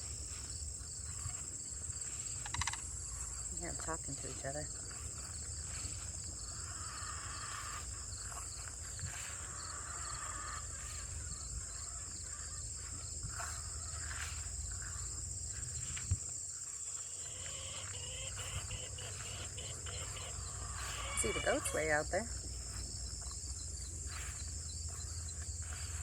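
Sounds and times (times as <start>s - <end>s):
insects buzzing: 0.0s - 26.0s
cranes calling: 2.0s - 3.4s, 5.7s - 16.0s, 16.6s - 22.3s.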